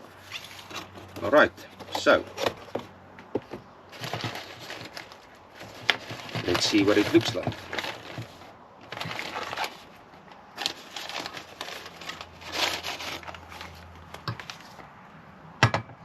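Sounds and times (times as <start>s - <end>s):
packaging rustling and crinkling: 0.2s - 14.8s.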